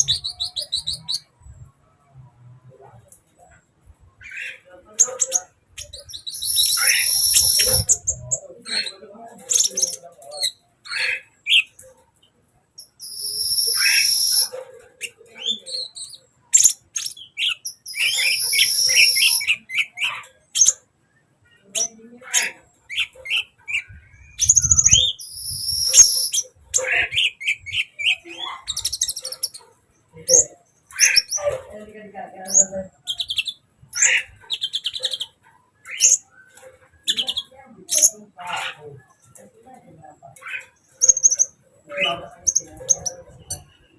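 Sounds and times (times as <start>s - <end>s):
bird sharp chirps: 4.2s - 8.2s, 12.8s - 14.6s, 15.5s - 20.8s, 22.9s - 29.7s.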